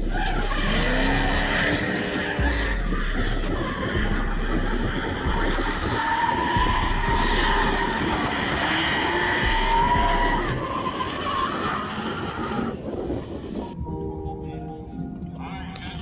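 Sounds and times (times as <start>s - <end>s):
car engine at high revs: 0.0s - 11.5s
tyre noise: 0.0s - 13.7s.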